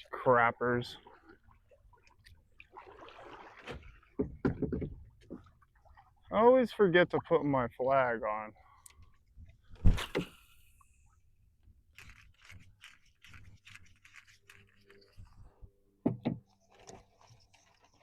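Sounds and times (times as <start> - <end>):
hands knocking and clicking on kayak: 4.2 - 5.4, 16.0 - 16.5.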